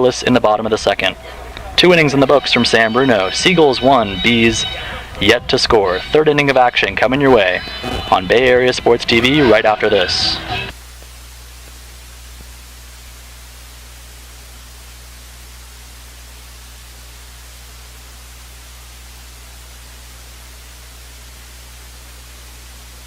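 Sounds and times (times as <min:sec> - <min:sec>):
low electrical hum: 0:00.0 - 0:23.0
steady hiss: 0:00.0 - 0:23.0.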